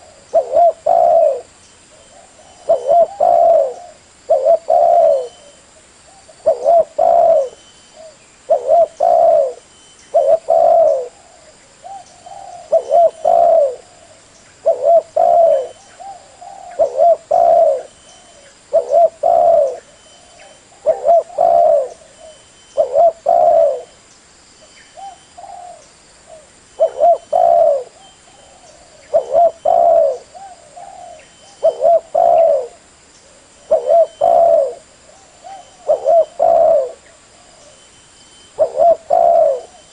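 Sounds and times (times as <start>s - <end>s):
dove cooing: 0.0s - 24.0s, 25.0s - 37.9s, 38.5s - 39.9s.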